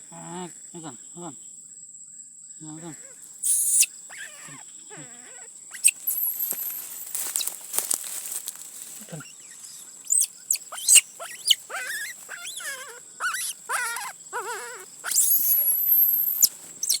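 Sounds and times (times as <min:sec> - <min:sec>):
high-pitched animal squeal: 0:03.0 - 0:07.5, 0:09.1 - 0:17.0
animal cries and squeaks: 0:03.0 - 0:07.6, 0:09.1 - 0:17.0.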